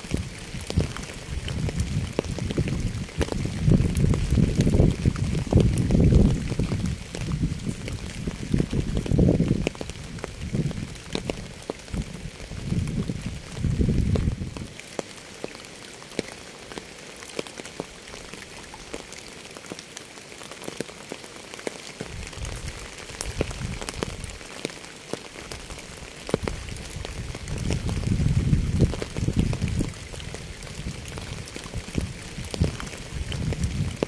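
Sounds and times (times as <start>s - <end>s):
rain drops tapping on hard surface: 0.0s - 34.0s.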